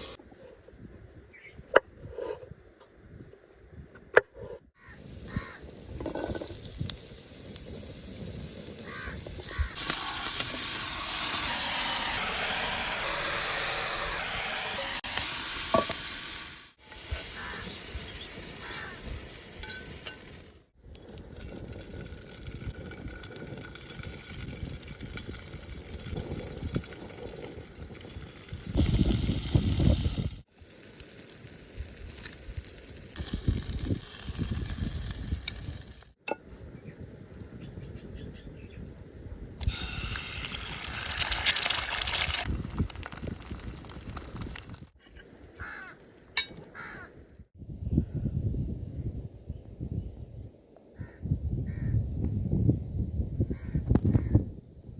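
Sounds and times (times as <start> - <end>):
food sizzling in a pan: 4.8 - 20.5.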